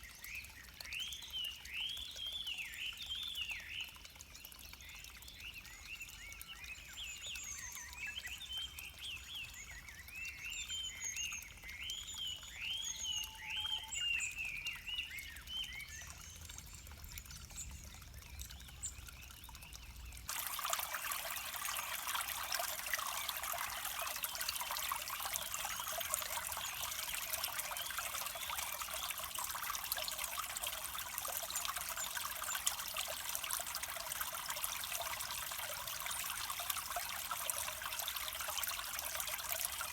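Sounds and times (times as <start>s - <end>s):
stream rushing: 20.3s - 39.9s.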